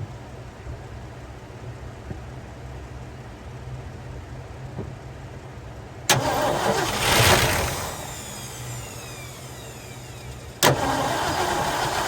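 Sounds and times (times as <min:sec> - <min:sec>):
truck engine starter cranking: 0:06.1 - 0:12.0.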